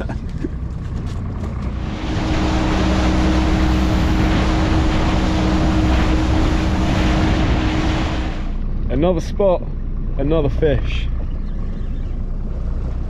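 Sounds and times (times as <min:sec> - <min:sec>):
motorboat engine: 0:00.0 - 0:13.0
wind and water rushing: 0:01.4 - 0:08.6.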